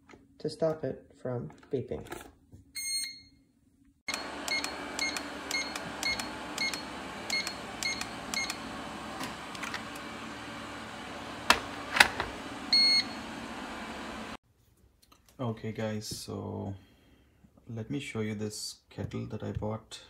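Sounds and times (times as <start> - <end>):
long beep: 12.7 - 13.2.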